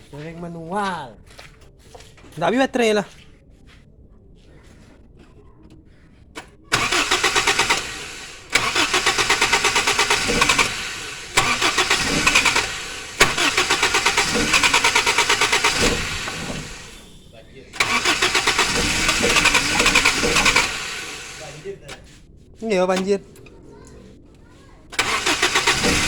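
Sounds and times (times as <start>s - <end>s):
engine cranking by starter: 6.3s - 22.1s, 22.9s - 23.5s, 24.9s - 26.0s.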